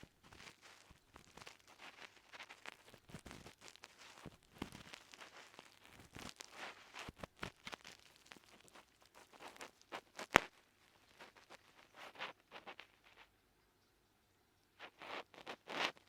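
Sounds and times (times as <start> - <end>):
earwax crackling: 0.0 - 13.4, 14.7 - 16.0
ear pick scraping in ear: 14.8 - 16.0.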